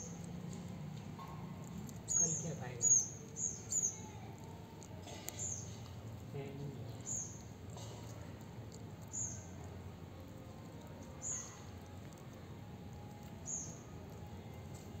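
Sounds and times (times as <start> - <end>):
bird chirping: 1.2 - 4.4, 6.9 - 7.5, 9.0 - 9.7, 10.8 - 11.9, 12.9 - 14.9.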